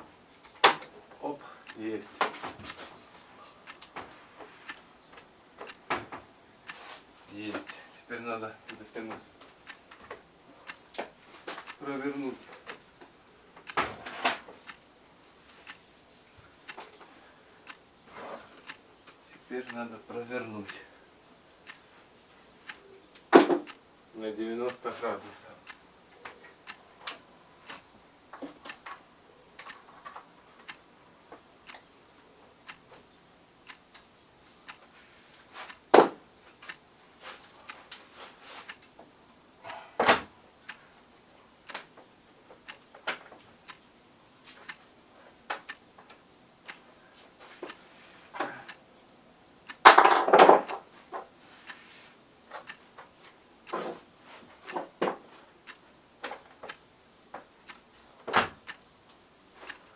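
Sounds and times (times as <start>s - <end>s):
small metallic clicks and ticks: 1.6s - 2.9s, 3.6s - 4.0s, 4.6s - 5.9s, 6.6s - 12.9s, 13.6s - 14.9s, 15.5s - 15.8s, 16.6s - 17.9s, 18.6s - 20.9s, 21.6s - 21.9s, 22.6s - 23.8s, 24.5s - 29.0s, 29.6s - 31.9s, 32.6s - 39.9s, 40.6s - 40.9s, 41.6s - 44.9s, 45.5s - 48.9s, 49.6s - 59.9s.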